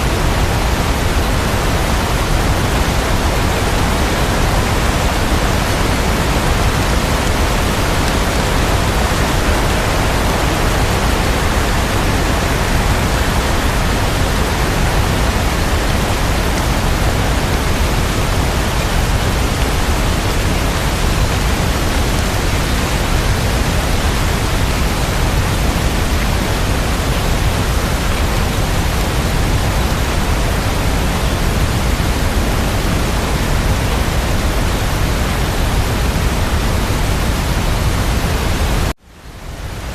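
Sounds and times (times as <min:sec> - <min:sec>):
steady dense rain: 0:00.0 - 0:39.9.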